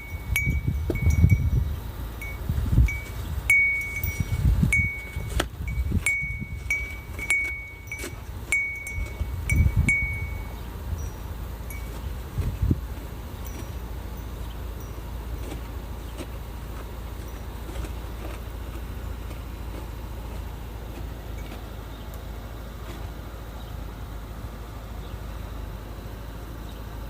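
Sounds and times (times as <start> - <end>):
wind chime ringing: 0.0 - 1.6, 2.2 - 12.0
gusty storm wind: 0.0 - 7.2, 8.4 - 13.1
wind buffeting microphone: 0.0 - 22.5.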